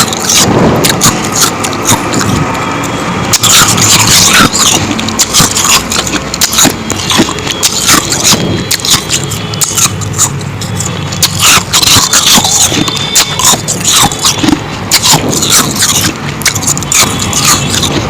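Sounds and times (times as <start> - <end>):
ice crunching being chewed: 0.0 - 18.0.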